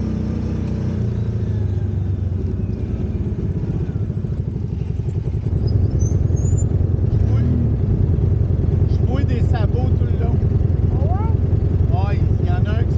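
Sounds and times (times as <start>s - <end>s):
off-road vehicle engine running: 0.0s - 12.9s.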